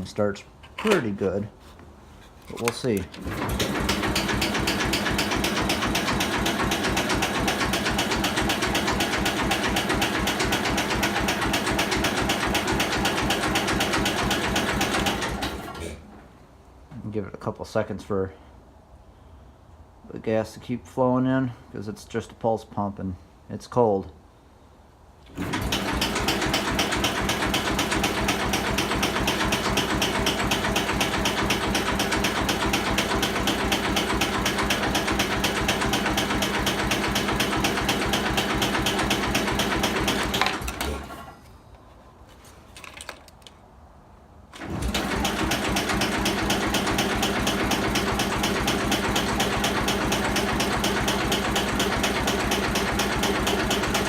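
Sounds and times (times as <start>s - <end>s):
electric starter cranking engine: 3.1s - 15.8s, 25.3s - 41.3s, 44.5s - 54.0s.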